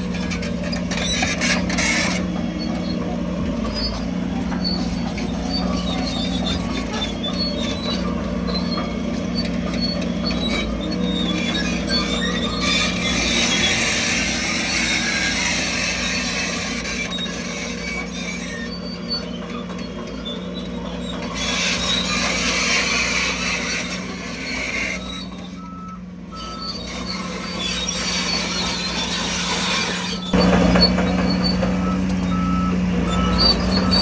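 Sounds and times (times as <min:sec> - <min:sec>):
heavy machinery engines running: 0:00.0 - 0:34.0
reversing alarm beeping: 0:25.3 - 0:27.2, 0:30.4 - 0:34.0.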